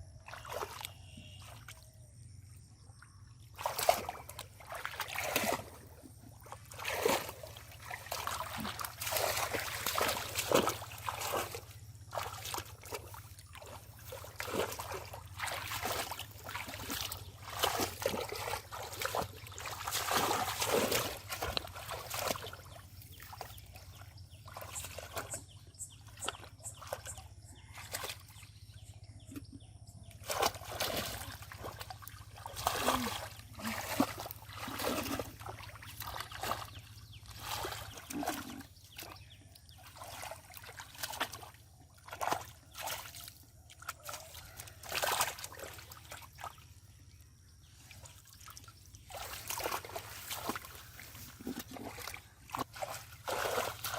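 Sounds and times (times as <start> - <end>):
water splashing and sloshing: 0.0 - 53.9.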